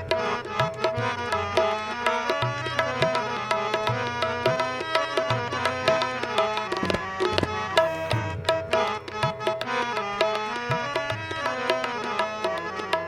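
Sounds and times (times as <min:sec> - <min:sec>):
tabla rhythm: 0:00.0 - 0:13.0
sustained melody notes: 0:07.8 - 0:09.1.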